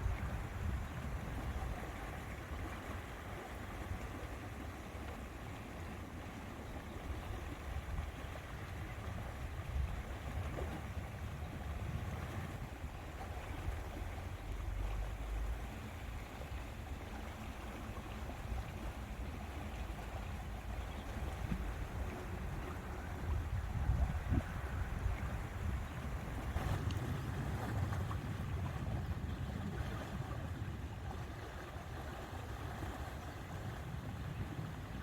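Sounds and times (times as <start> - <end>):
small waves lapping at shore: 0.0 - 35.0
wind gusting over microphone: 20.8 - 31.2.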